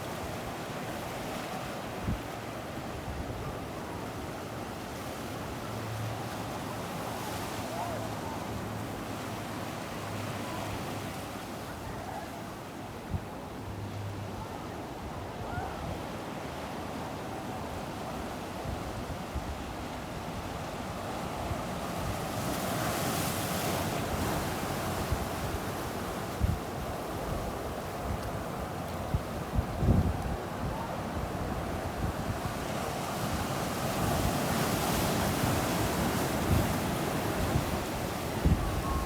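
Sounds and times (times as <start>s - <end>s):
ocean surf washing onto beach: 16.2s - 39.0s
wind buffeting microphone: 24.0s - 39.0s.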